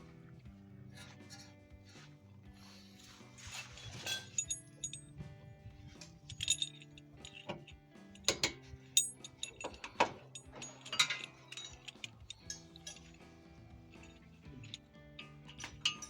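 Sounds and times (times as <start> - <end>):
background music: 0.0 - 16.0
metallic clicks of hand tools: 3.6 - 5.1, 6.0 - 16.0.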